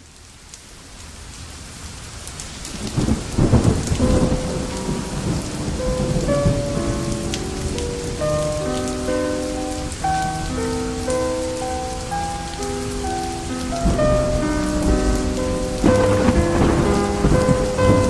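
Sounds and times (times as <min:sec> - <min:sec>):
steady rain: 0:00.0 - 0:18.0
low rumble of thunder: 0:02.7 - 0:08.6, 0:13.8 - 0:18.0
slow sustained music notes: 0:04.0 - 0:18.0.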